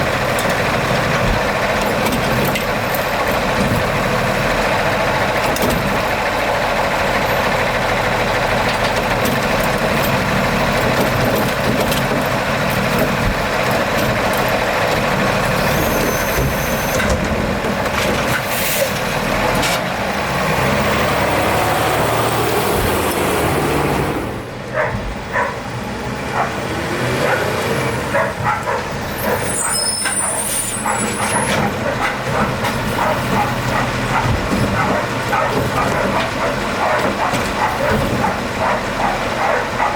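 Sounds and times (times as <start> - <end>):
knocks and clanks: 0.0 - 6.3, 8.6 - 19.8, 30.0 - 39.9
garbage truck running: 0.0 - 39.9.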